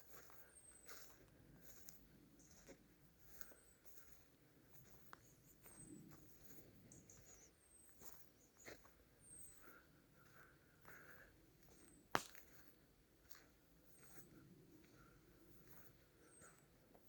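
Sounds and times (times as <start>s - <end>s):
footsteps on leafy forest floor: 9.6s - 14.3s.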